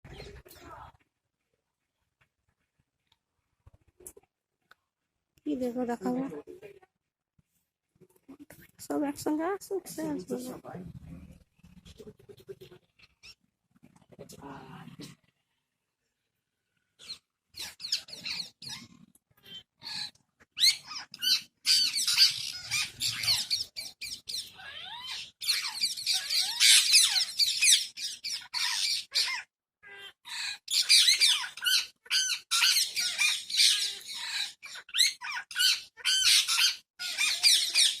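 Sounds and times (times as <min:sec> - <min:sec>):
parrots squawking and chattering: 0:11.0 - 0:14.1, 0:17.0 - 0:38.0.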